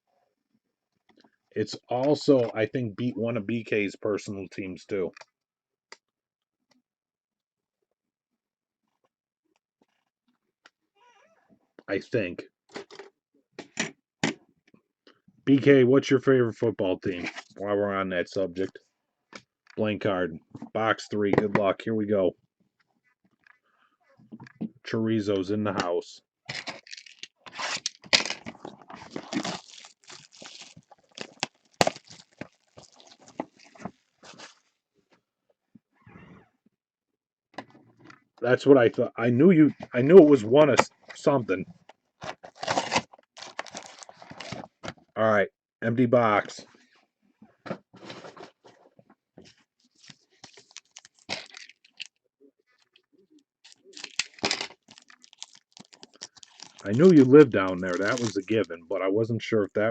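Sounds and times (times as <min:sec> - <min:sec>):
packaging tearing and crinkling: 0:26.5 - 0:34.6, 0:42.5 - 0:44.6, 0:50.1 - 0:52.1, 0:53.6 - 0:58.7.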